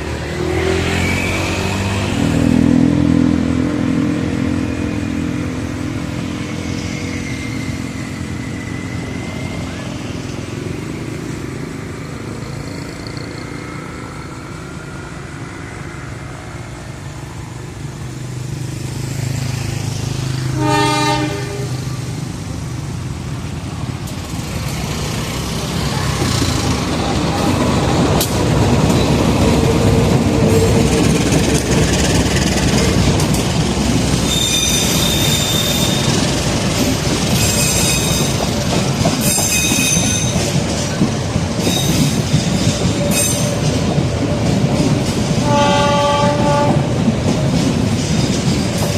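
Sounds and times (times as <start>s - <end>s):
locomotive engine rumbling: 19.9s - 48.9s
train horn blast: 20.5s - 22.0s, 45.4s - 46.9s
metallic wheel squeal: 34.2s - 38.4s, 39.2s - 40.5s.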